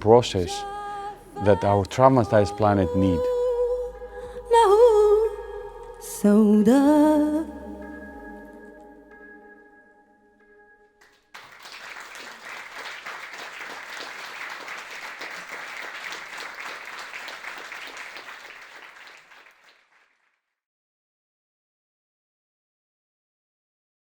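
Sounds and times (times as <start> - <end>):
audience applauding: 11.0 - 20.2.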